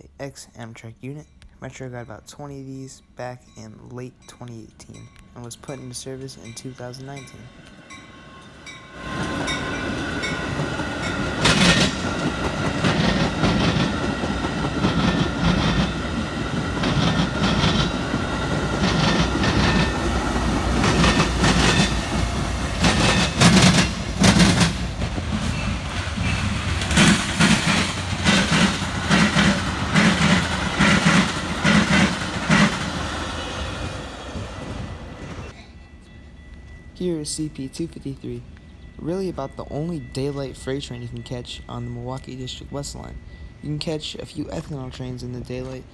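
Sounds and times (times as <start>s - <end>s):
train passing rumble: 0.0s - 45.9s
train wheels clickety-clack: 9.1s - 35.6s.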